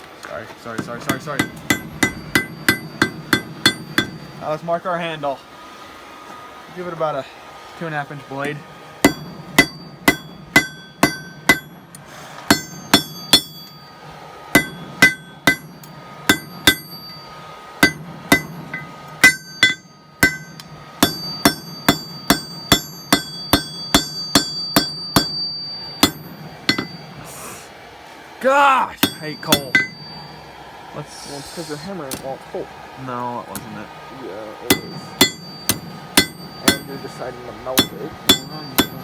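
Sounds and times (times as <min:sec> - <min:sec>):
steady low hum: 0:00.0 - 0:39.0
hammer striking steel on anvil: 0:00.7 - 0:04.5, 0:08.4 - 0:27.2, 0:29.0 - 0:30.5, 0:32.1 - 0:32.4, 0:34.6 - 0:39.0.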